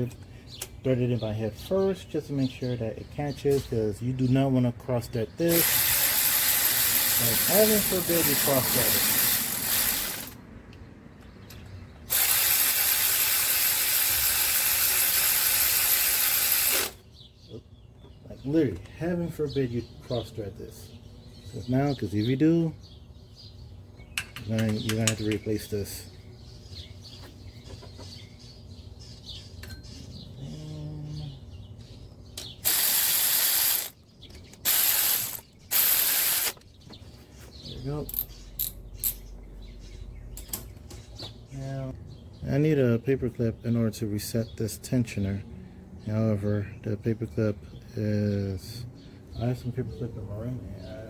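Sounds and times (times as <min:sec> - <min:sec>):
ratchet wrench ratcheting: 0:05.5 - 0:10.4, 0:12.1 - 0:17.0, 0:32.6 - 0:36.6.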